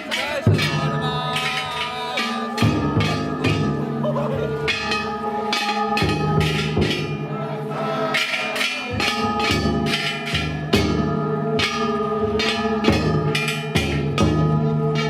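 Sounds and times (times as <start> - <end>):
deep drum beating: 0.0 - 7.4
bronze bells struck with hammers: 0.0 - 15.0.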